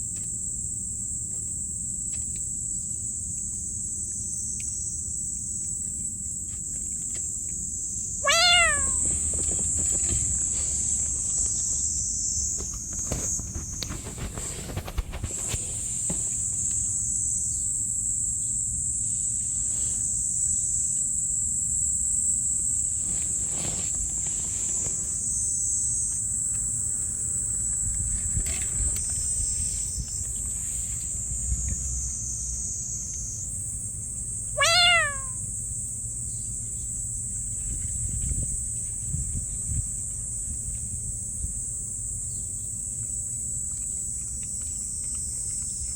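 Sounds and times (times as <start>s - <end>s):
insects chirring: 0.0s - 45.9s
cat meowing: 8.2s - 9.3s, 34.6s - 35.5s.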